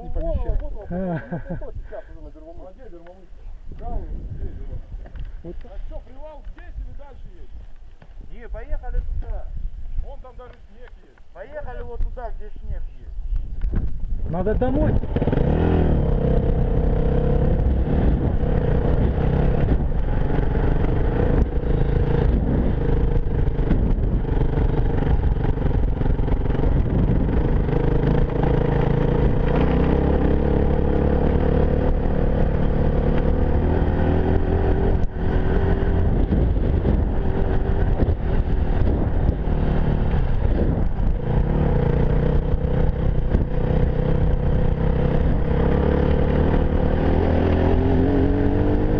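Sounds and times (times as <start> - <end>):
motorcycle engine running: 13.7 - 48.9.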